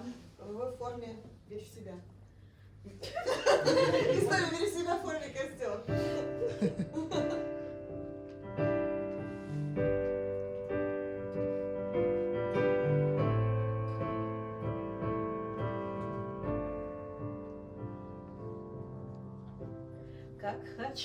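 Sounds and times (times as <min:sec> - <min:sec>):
piano chords ringing: 0:03.6 - 0:21.0.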